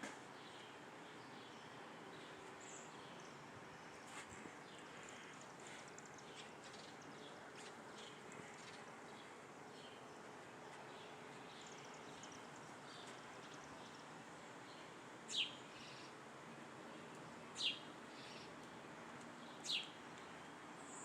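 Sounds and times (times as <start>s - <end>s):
faint high bird chirps: 14.8s - 16.2s, 17.6s - 18.6s, 19.5s - 20.0s
sharp down-slurred bird calls: 15.3s - 16.2s.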